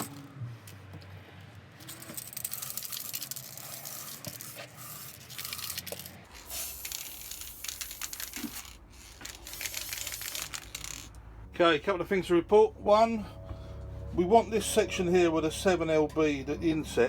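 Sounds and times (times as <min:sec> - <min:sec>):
can handling clicks and rattles: 0:02.0 - 0:11.2
spray-paint can hissing: 0:02.5 - 0:11.1.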